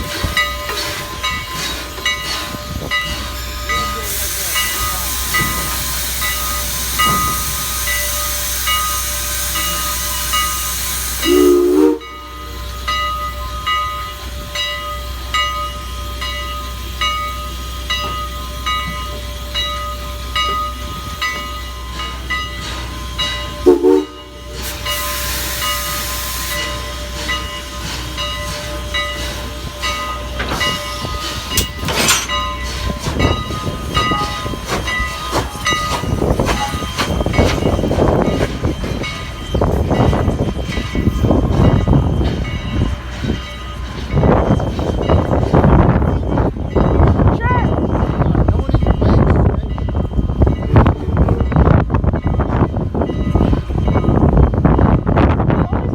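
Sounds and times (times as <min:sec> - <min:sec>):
steam locomotive hiss and beat: 0:00.0 - 0:55.0
steam whistle toots: 0:10.6 - 0:12.5, 0:23.6 - 0:26.6.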